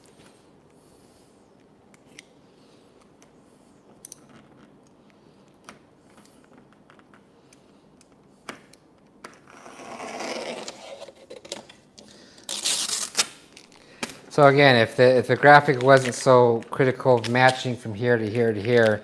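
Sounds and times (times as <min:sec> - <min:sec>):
vinyl film scraping rub: 0:09.4 - 0:11.8, 0:12.4 - 0:13.6.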